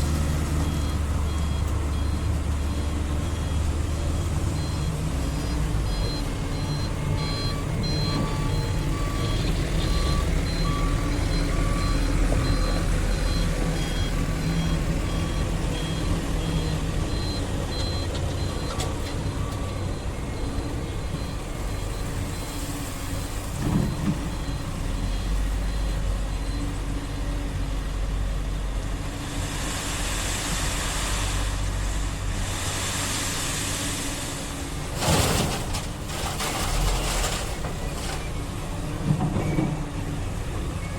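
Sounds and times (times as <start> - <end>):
diesel excavator engines running: 0.0 - 40.9
electronic warning alarm beeping: 5.9 - 22.5.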